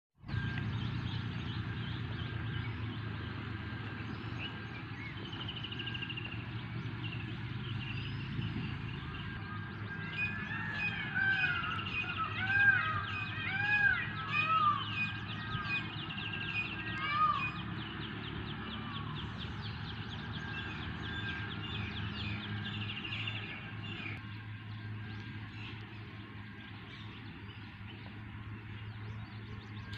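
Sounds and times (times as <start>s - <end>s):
small birds chirping: 0.2s - 29.9s
peafowl calling: 9.9s - 17.8s
steady low hum: 17.8s - 29.9s.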